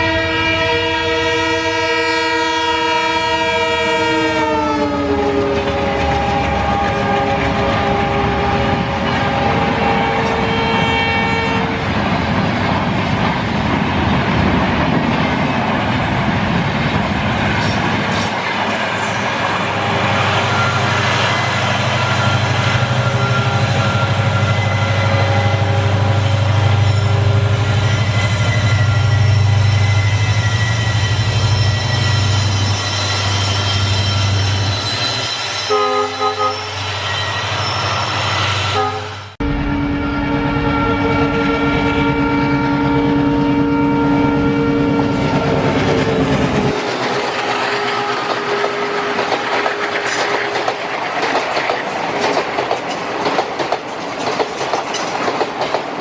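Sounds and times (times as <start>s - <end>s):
train horn: 0.0s - 11.9s, 19.6s - 34.6s, 35.6s - 36.9s, 38.6s - 50.7s
diesel locomotive engine hum: 0.0s - 56.0s
train passing: 0.0s - 56.0s
wheels rattling on track: 5.1s - 10.6s, 11.3s - 35.6s, 44.9s - 56.0s.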